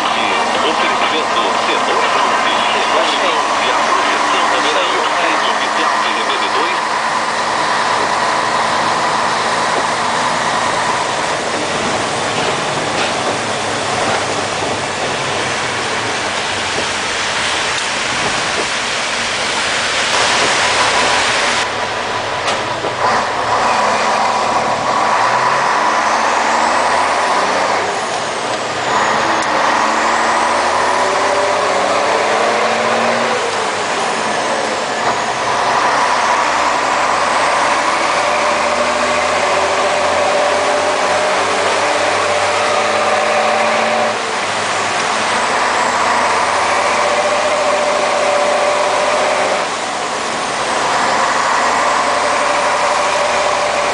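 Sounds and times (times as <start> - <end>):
road noise: 0.0 - 53.9
truck diesel engine: 0.0 - 53.9.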